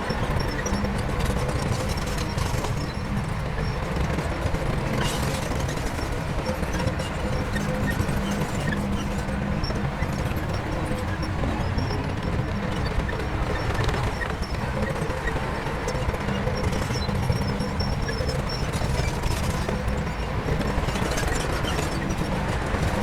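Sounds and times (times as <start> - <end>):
fast rattling clatter: 0.0 - 23.0
heavy diesel machinery rumbling: 0.0 - 23.0.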